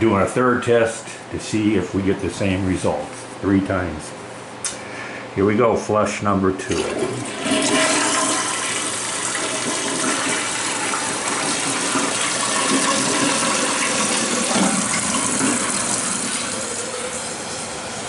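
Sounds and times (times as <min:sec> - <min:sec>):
toilet flushing: 0:06.6 - 0:18.0.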